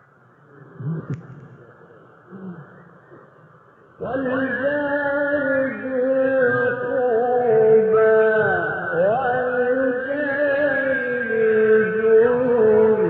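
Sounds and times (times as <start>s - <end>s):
man reciting melodically: 4.0s - 13.0s.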